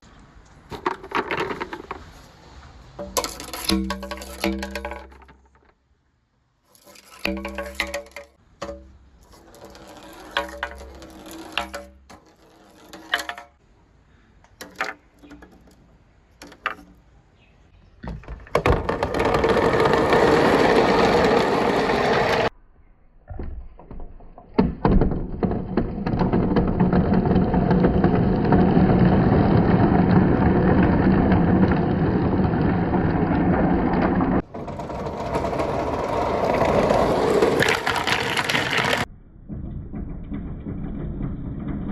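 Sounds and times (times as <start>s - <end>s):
marbles rolling through plastic pipes: 0.7s - 2.2s, 3.0s - 5.8s, 6.7s - 13.6s, 18.4s - 22.5s, 24.2s - 41.9s.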